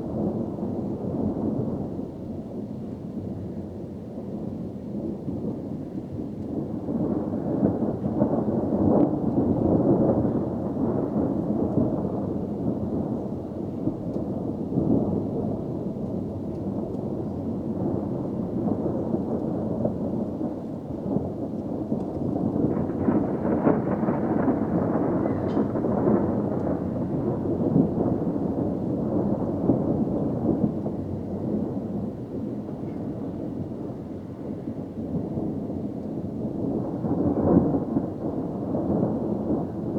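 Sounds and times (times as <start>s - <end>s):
rolling thunder: 0.0s - 39.9s.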